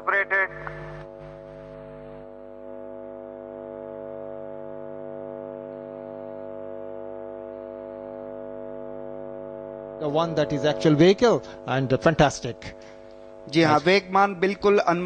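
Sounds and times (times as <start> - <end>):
drone of held tones: 0.0 - 15.0.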